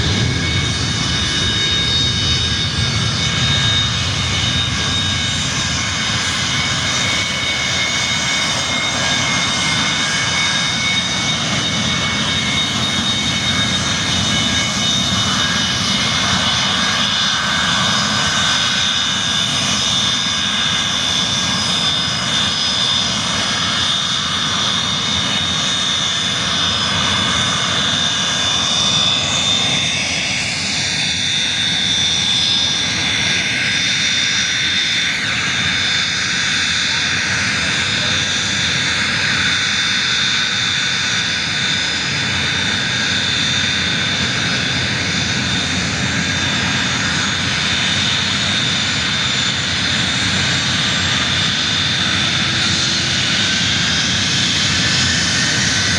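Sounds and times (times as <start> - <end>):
high-pitched engine whine: 0.0 - 55.9
jet engines roaring: 0.0 - 55.9.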